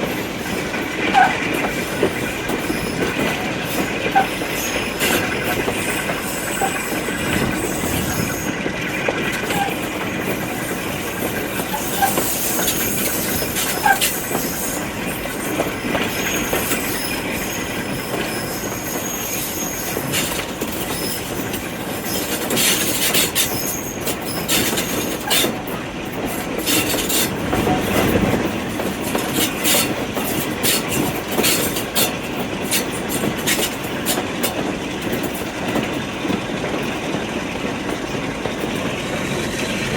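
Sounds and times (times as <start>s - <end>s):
train wheels clattering: 0.0s - 39.9s
faint high wheel squeal: 1.1s - 8.5s, 9.4s - 28.0s.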